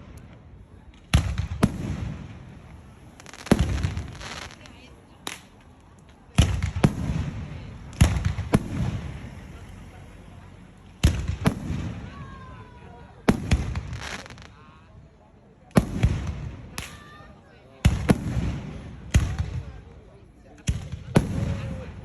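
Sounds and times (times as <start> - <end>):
fireworks booming: 0.0 - 5.4, 6.3 - 9.5, 11.0 - 12.5, 13.2 - 14.6, 15.7 - 16.9, 17.8 - 20.0, 20.7 - 22.0.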